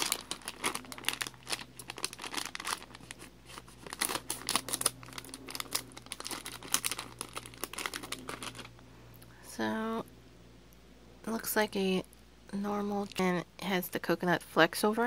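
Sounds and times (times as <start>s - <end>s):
snack wrapper crinkling and tearing: 0.0s - 8.8s.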